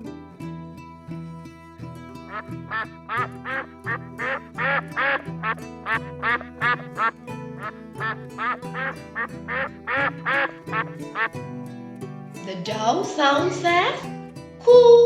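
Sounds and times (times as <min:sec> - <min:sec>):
background music: 0:00.0 - 0:15.0
duck quacking: 0:02.3 - 0:11.4.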